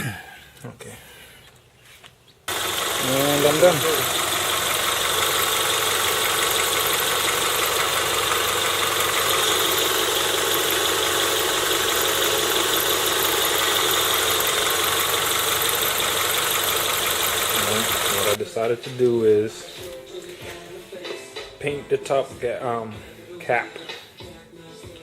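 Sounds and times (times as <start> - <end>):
car engine idling: 2.5 - 18.4.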